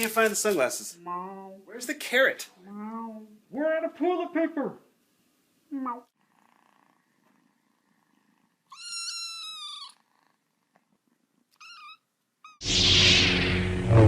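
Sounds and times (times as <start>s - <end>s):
cat meowing: 8.7s - 10.1s, 11.5s - 12.6s
loud burst of sound: 12.6s - 14.0s.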